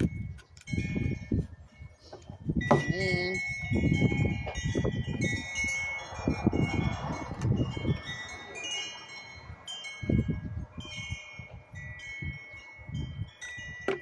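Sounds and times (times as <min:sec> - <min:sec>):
wind chimes ringing: 0:00.0 - 0:14.0
low thuds and handling noise: 0:02.1 - 0:03.1, 0:13.8 - 0:14.0.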